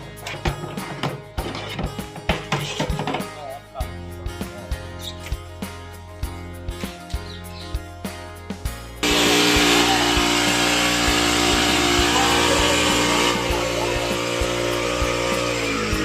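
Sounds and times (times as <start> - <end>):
small petrol engine running: 9.0 - 16.0
spray pump hiss: 9.0 - 16.0.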